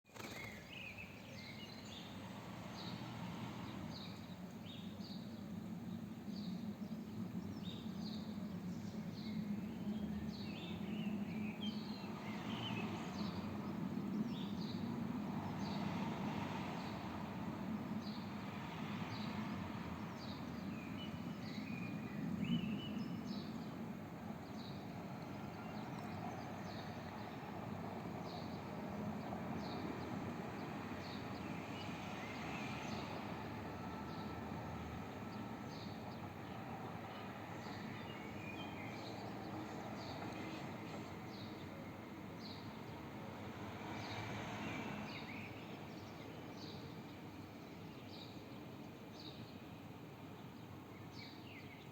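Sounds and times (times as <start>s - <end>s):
outdoor background noise: 0.0s - 51.9s.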